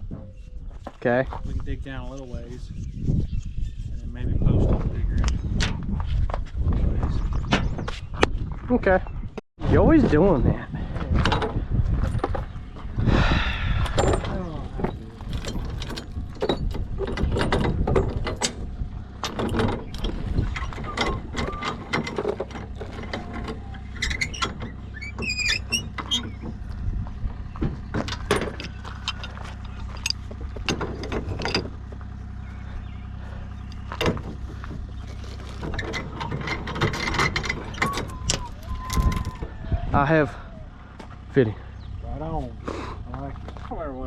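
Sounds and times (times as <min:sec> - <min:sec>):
low machine hum: 0:10.6 - 0:44.0.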